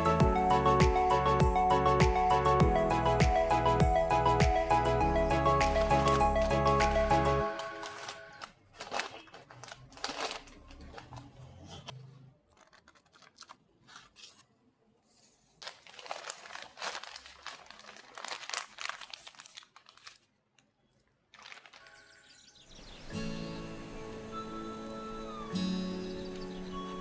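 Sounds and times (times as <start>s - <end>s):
wrapping material crackling: 5.6s - 14.5s, 15.1s - 22.7s.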